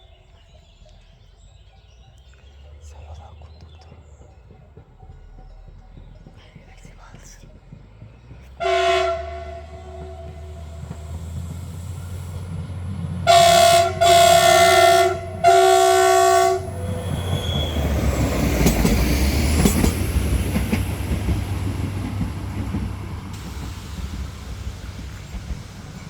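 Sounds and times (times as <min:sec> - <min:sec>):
train rumbling past: 0:00.0 - 0:26.0
train horn blasts: 0:08.6 - 0:12.5, 0:13.2 - 0:17.8.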